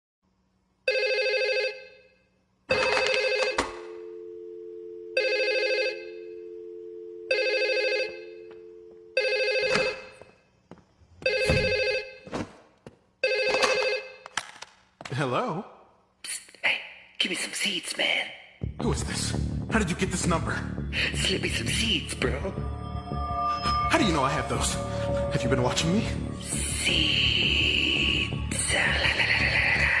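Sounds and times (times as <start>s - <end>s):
telephone trilling ring: 0.9s - 2.0s, 2.7s - 10.2s, 11.2s - 12.2s, 13.2s - 14.2s
steady two-note tone: 22.2s - 26.6s.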